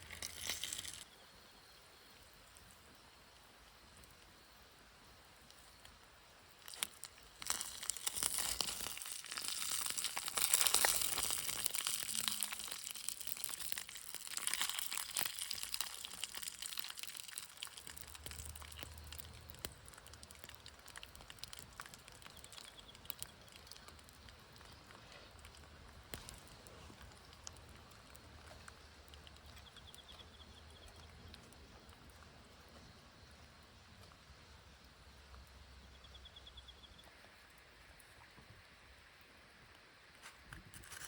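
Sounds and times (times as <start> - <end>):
crinkling and rustling: 6.7 - 29.7, 40.2 - 41.0.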